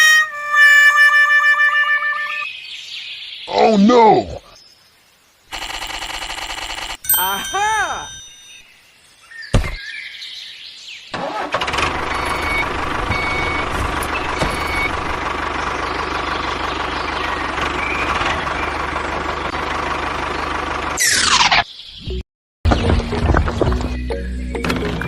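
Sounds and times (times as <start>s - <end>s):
tractor engine running: 11.2s - 21.1s.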